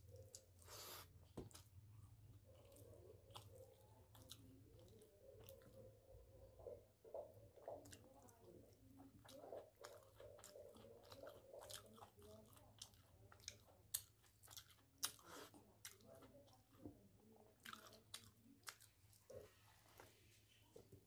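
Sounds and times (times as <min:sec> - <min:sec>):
man chewing with wet mouth sounds: 0:00.0 - 0:21.0.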